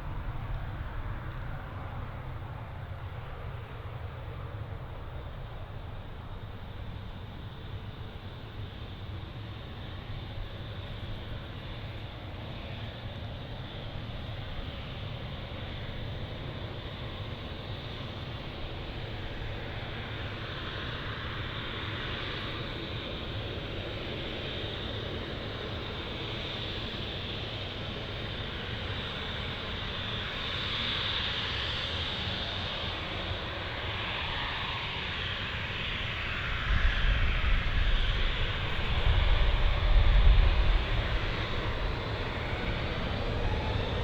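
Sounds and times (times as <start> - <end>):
distant jet engines rumbling: 32.0 - 44.0.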